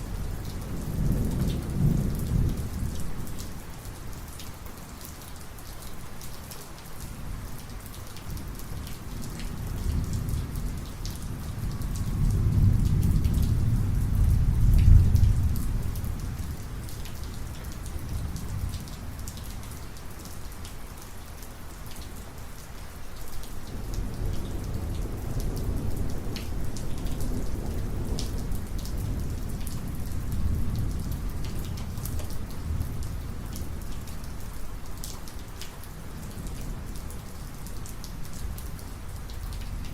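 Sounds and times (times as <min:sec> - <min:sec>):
low rolling thunder: 0:00.0 - 0:03.6, 0:08.3 - 0:19.4, 0:23.7 - 0:33.8
heavy rain: 0:00.0 - 0:39.9
raindrops ticking: 0:07.5 - 0:39.9.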